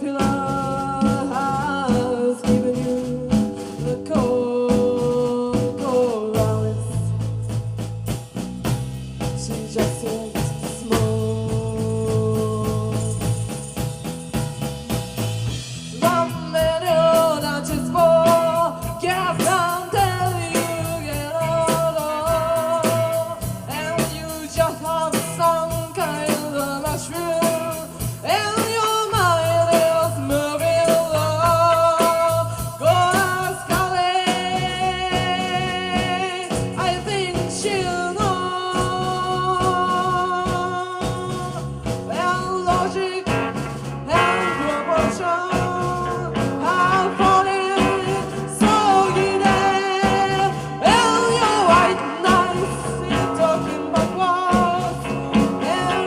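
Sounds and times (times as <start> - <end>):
person singing: 0.0 - 7.3, 9.2 - 13.9, 15.8 - 56.0
rock drums and guitar: 0.0 - 56.0.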